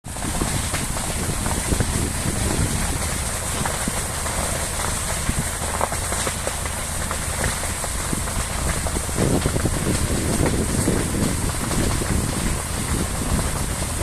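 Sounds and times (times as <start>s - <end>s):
fire crackling and rushing: 0.0s - 14.0s.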